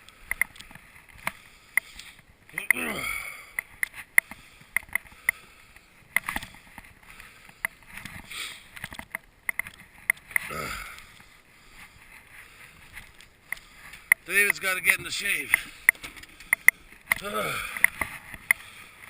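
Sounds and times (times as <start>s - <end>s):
sharp clicks: 13.1s - 18.7s.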